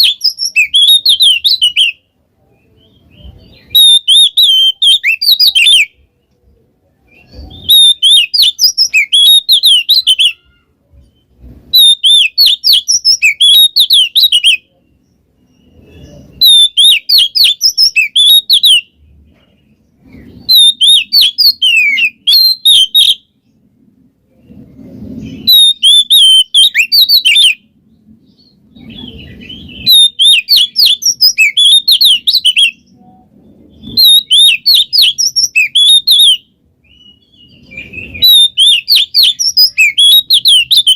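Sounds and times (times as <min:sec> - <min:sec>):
bird singing whistled phrases: 0:00.0 - 0:06.0, 0:07.1 - 0:10.6, 0:11.7 - 0:14.8, 0:15.4 - 0:18.9, 0:20.4 - 0:23.3, 0:25.2 - 0:27.6, 0:28.3 - 0:40.9.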